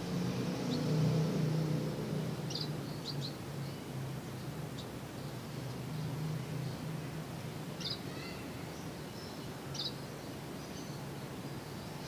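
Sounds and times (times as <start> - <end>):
small bird chirping: 2.4 - 3.8, 7.8 - 10.0.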